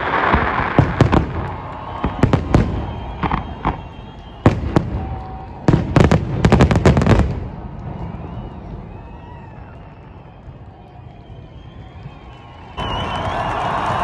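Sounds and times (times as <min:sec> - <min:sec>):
fireworks booming and banging: 0:00.0 - 0:11.1
rolling echo: 0:00.0 - 0:14.0.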